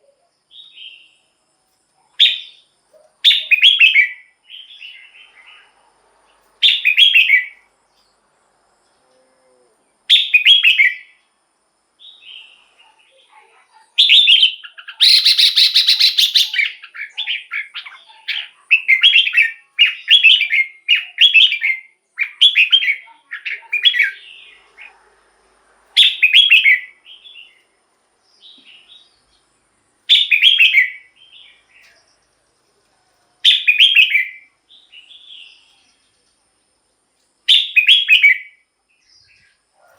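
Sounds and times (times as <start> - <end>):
bulbul singing warbled phrases: 2.0 - 5.8, 12.0 - 25.0, 26.0 - 27.6, 30.1 - 32.2, 33.4 - 36.1, 37.5 - 39.5.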